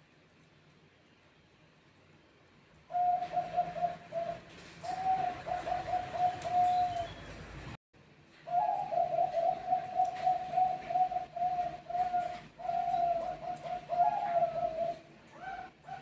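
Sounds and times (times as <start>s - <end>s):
dove cooing: 2.9s - 7.2s, 8.4s - 16.0s.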